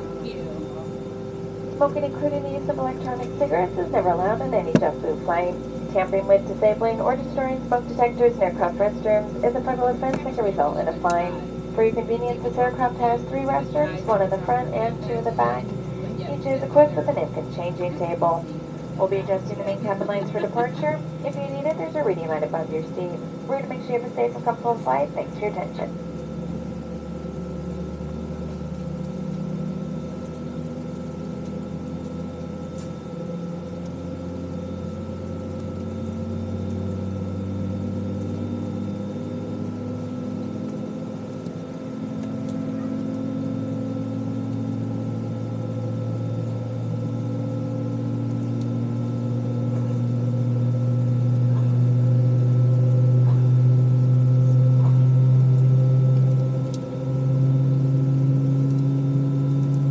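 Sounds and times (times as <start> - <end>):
jet engines droning in cabin: 0.0 - 59.9.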